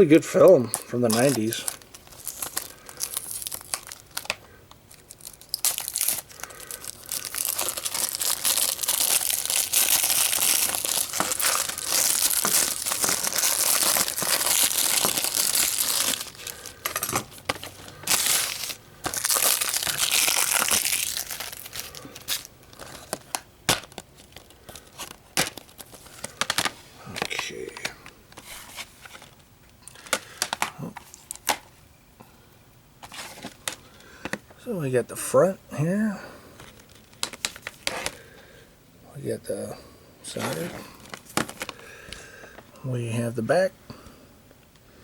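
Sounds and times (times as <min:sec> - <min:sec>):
plastic wrap crinkling: 0:00.0 - 0:31.6, 0:36.6 - 0:38.3, 0:40.3 - 0:41.9.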